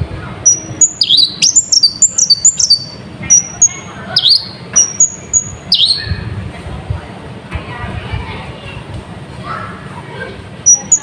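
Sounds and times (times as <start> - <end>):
sunbird singing high sharp notes: 0.4 - 6.2, 10.7 - 11.0.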